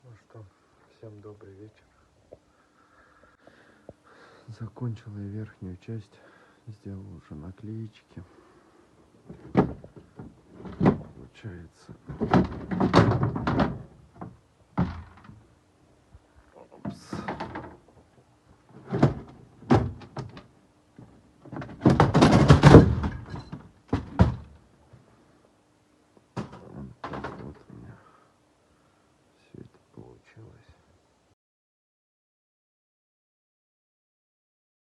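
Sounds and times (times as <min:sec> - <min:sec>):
knocks clicks and rattles: 0:09.3 - 0:11.4, 0:12.0 - 0:15.4, 0:16.9 - 0:17.9, 0:18.7 - 0:24.6.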